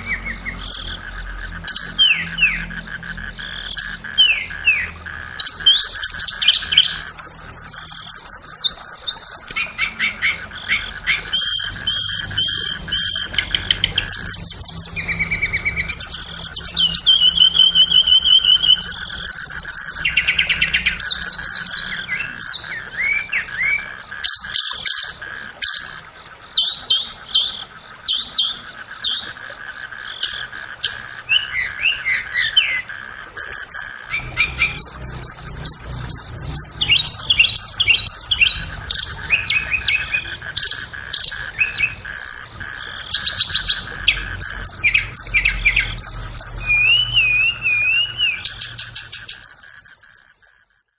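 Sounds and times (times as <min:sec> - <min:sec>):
bird singing whistled trills: 0:00.0 - 0:02.7, 0:03.3 - 0:29.4, 0:33.4 - 0:50.9
faint steady drone: 0:00.0 - 0:50.0.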